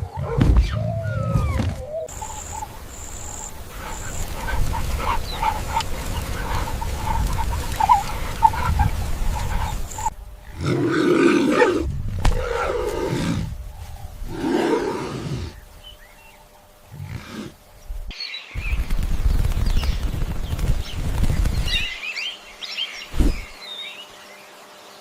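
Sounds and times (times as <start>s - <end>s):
big cat roaring and growling: 10.4s - 13.6s, 14.2s - 15.6s.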